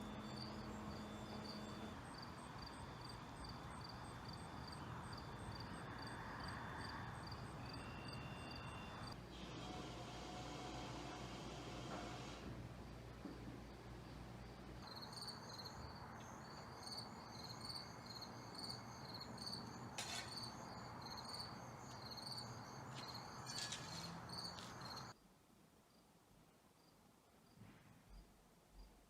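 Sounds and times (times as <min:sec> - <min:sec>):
cricket chirping: 0:00.0 - 0:09.2, 0:14.4 - 0:25.2
steady outdoor hiss: 0:00.0 - 0:29.0.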